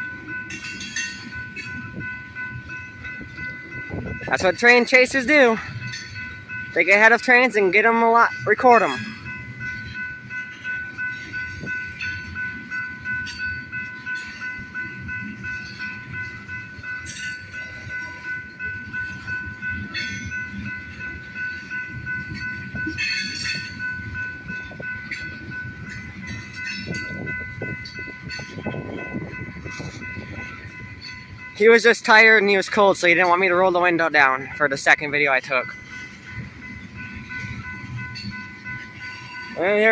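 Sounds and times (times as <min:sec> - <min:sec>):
train wheels rumbling over rail joints: 0:09.1 - 0:34.6.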